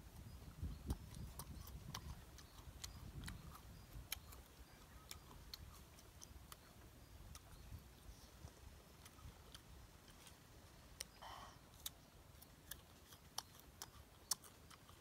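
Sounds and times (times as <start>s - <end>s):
person chewing crunchy fruit: 0.4s - 15.0s.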